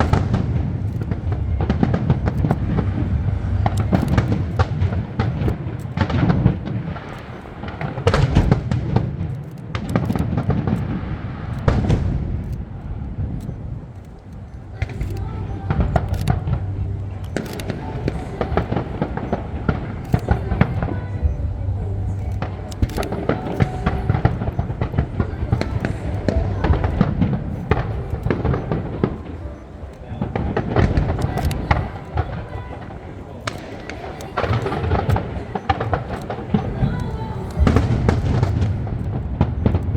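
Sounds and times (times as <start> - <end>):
low rumble: 0.0 - 7.0, 10.5 - 29.4
fireworks bursting: 0.0 - 39.9.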